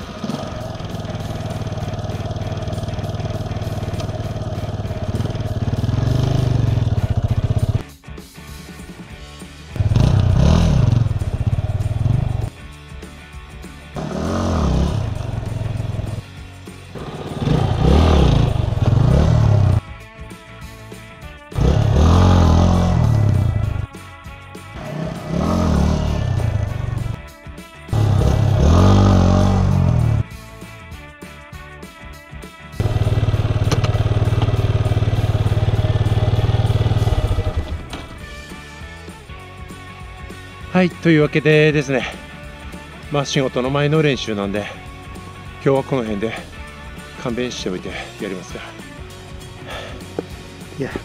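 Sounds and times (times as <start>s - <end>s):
motorcycle engine revving: 0.0s - 7.8s, 9.8s - 12.5s, 13.9s - 19.8s, 21.6s - 23.9s, 24.7s - 27.2s, 27.9s - 30.3s, 32.8s - 38.5s
background music: 0.0s - 51.0s.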